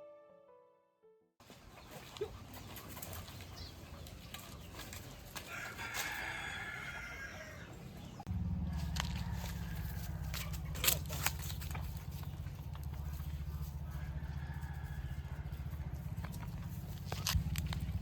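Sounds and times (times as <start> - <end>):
solo piano music: 0.0 - 1.3
farmyard ambience: 1.4 - 18.0
rooster crowing: 5.4 - 7.8, 8.6 - 10.8, 13.8 - 16.1.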